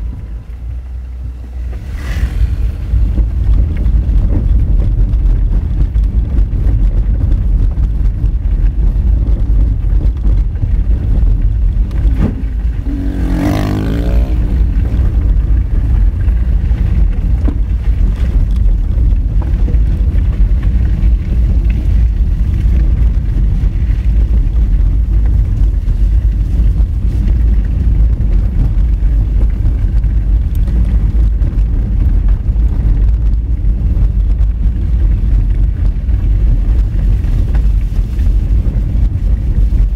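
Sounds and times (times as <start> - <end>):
car engine running: 0.0 - 39.9
tyres rumbling on gravel: 0.0 - 39.9.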